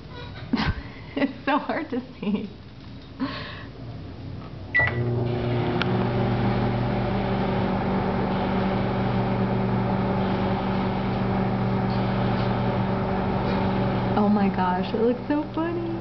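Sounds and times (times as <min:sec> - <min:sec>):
microwave oven humming: 0:04.4 - 0:16.0.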